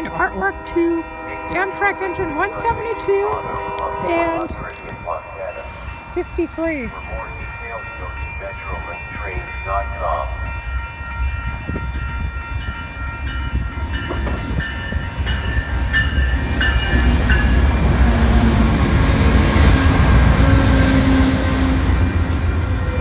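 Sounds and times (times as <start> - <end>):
bell ringing: 0.0 - 17.7
train rumbling: 0.0 - 23.0.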